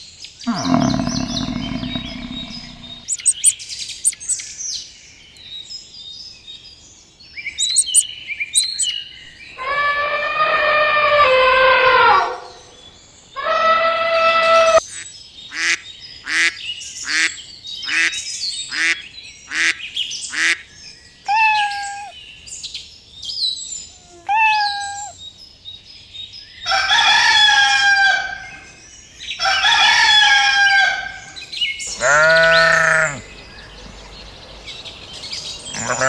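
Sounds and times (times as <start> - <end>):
rooster crowing: 26.7 - 28.4.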